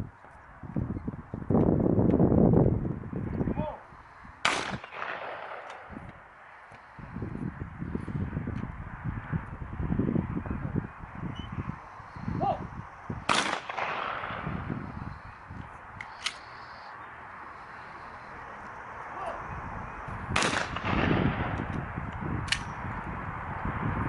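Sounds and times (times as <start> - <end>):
faint sharp gunshot cracks: 4.4 - 5.9, 13.3 - 14.5, 20.4 - 21.5
loud gunshots with echo: 4.4 - 5.9, 13.3 - 14.7, 20.3 - 21.6.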